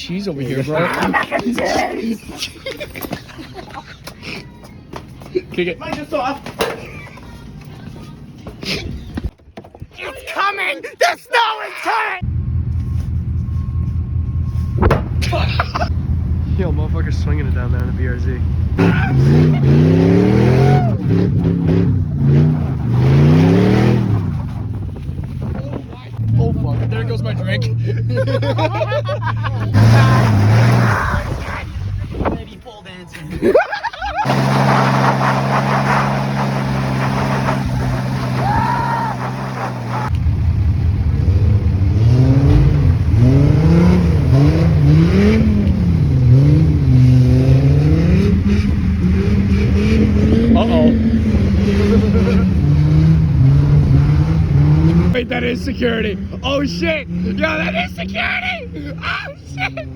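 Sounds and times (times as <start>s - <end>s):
car engine revving hard: 17.2s - 24.4s, 29.6s - 31.0s, 34.2s - 40.1s, 41.1s - 55.4s.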